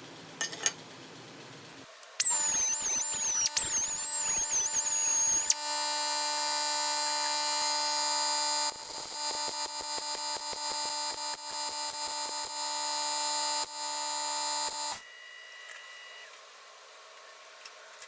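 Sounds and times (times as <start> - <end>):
power tool whining: 2.2 - 16.3.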